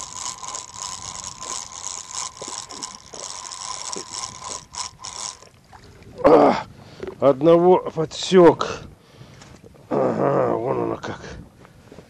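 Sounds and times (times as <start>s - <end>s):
fishing reel whirring: 0.0s - 6.2s.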